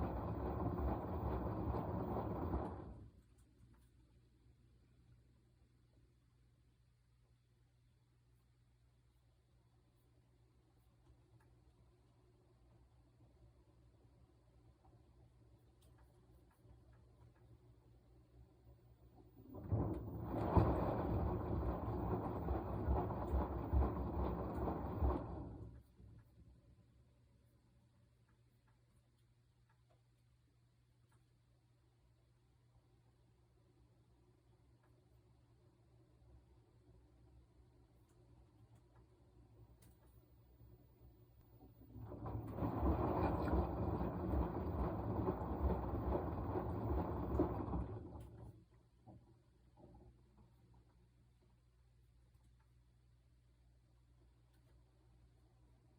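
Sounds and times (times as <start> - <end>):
washing machine agitating: 0.0 - 3.4, 14.6 - 26.4, 35.6 - 50.6.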